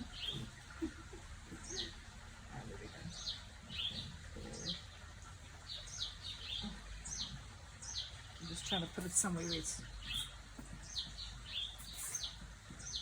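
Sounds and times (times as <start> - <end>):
small bird chirping: 5.7 - 13.0.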